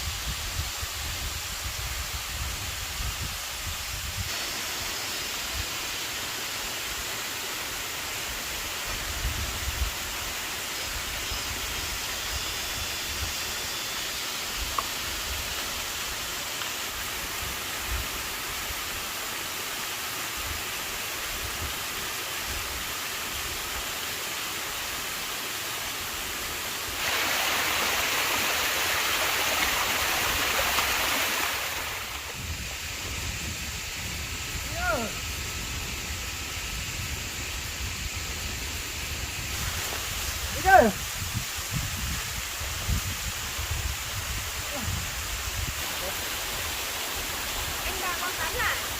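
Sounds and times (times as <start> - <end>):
running water rushing: 0.0 - 48.9.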